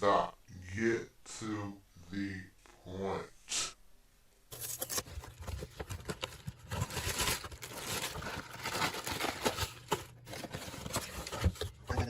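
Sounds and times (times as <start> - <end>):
plastic packaging crinkling: 4.5 - 11.8.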